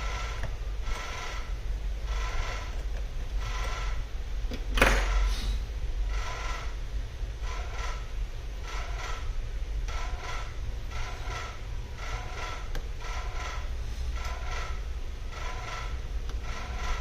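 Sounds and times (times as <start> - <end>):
squeaky scraping strokes: 0.0 - 4.1, 9.9 - 17.0
steady low hum: 0.0 - 17.0.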